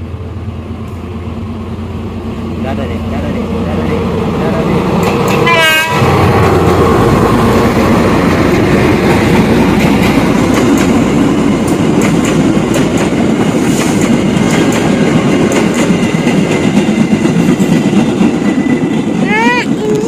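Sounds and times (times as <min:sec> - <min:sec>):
train rumbling past: 0:00.0 - 0:20.0
wheels clacking over rail joints: 0:04.9 - 0:20.0.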